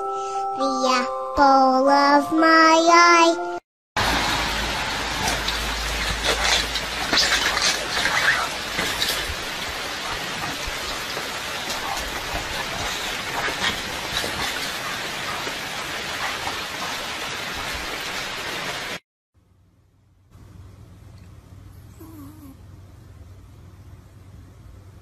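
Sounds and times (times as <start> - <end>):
patter of raindrops: 4.0 - 19.0
rain hiss: 4.0 - 19.0.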